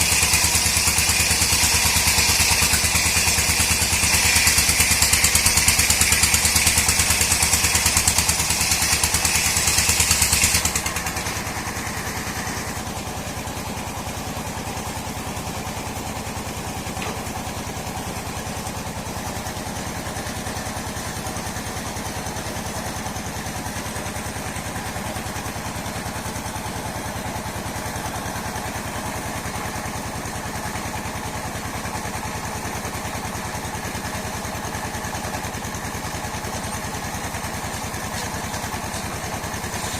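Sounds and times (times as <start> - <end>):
sawmill high screeching whine: 0.0 - 14.8, 33.4 - 39.9
sawmill engine running: 0.0 - 39.9.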